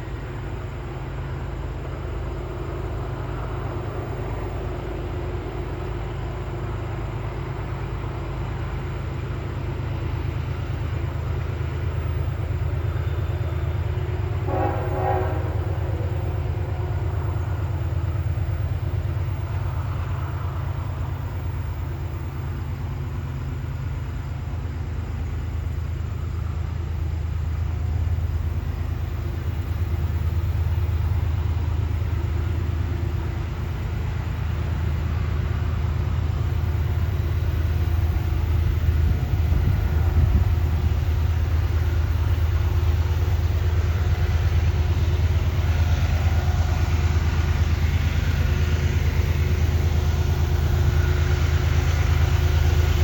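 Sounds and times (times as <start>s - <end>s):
diesel locomotives rumbling: 0.0s - 53.0s
train horn blast: 13.0s - 17.9s.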